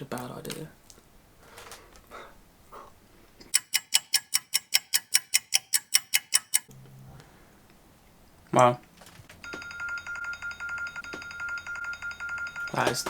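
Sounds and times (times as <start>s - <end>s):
timer alarm short beeps: 9.4s - 13.0s.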